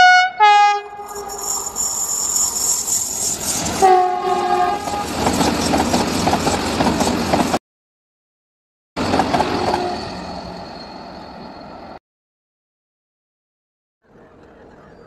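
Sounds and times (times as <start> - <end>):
train horn blasts: 0.0 - 1.3, 3.8 - 5.2, 9.5 - 10.1.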